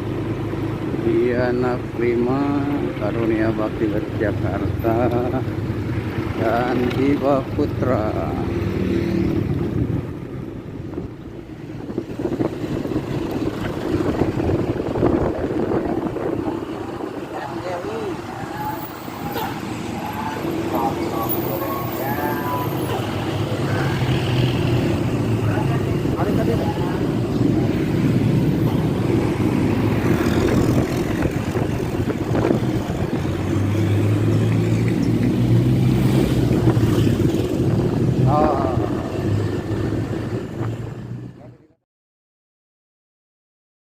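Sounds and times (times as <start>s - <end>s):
road traffic: 0.0s - 41.8s
bus engine passing: 4.6s - 41.5s.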